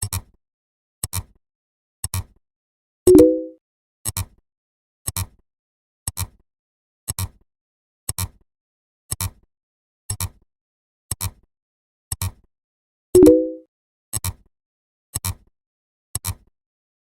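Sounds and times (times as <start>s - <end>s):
brief pitched tone: 3.1s - 3.6s, 13.2s - 13.6s.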